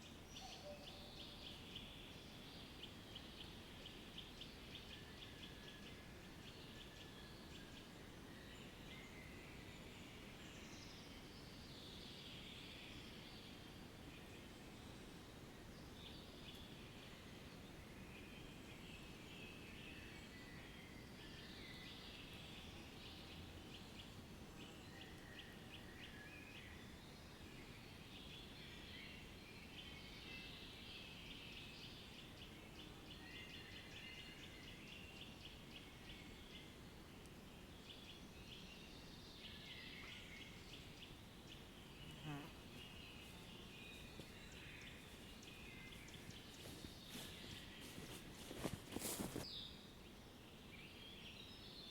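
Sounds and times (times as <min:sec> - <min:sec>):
low background hiss: 0:00.0 - 0:51.9
small birds chirping and trilling: 0:37.9 - 0:49.7.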